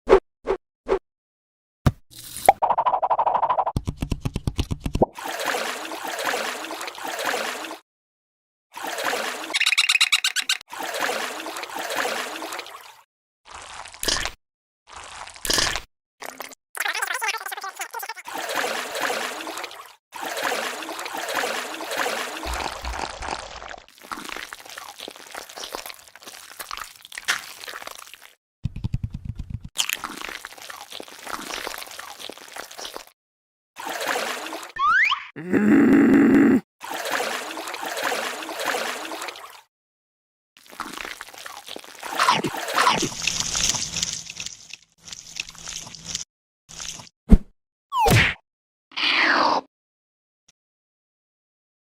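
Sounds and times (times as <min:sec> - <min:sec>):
water trickling and splashing: 0:05.2 - 0:07.8, 0:08.8 - 0:09.8, 0:10.6 - 0:15.5, 0:18.1 - 0:28.4, 0:29.9 - 0:33.2, 0:33.8 - 0:34.8, 0:36.8 - 0:39.7, 0:40.6 - 0:47.1.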